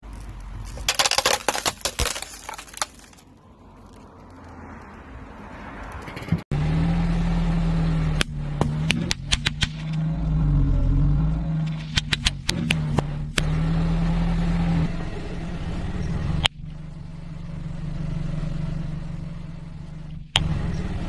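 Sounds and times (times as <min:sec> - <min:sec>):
brittle objects cracking under tyre: 0:00.0 - 0:06.1
car engine running: 0:06.2 - 0:21.0.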